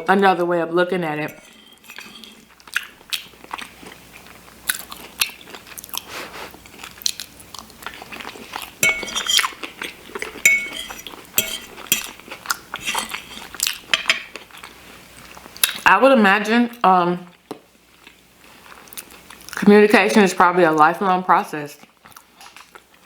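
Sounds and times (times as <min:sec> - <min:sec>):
utensil clinking on dish: 0:01.2 - 0:02.5, 0:08.8 - 0:12.2
chewing and wet mouth clicks: 0:06.7 - 0:08.7.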